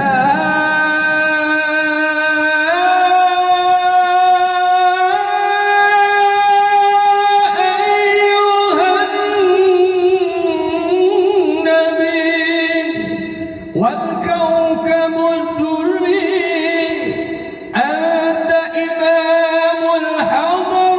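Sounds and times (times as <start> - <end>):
person singing devotional song: 0.0 - 20.9.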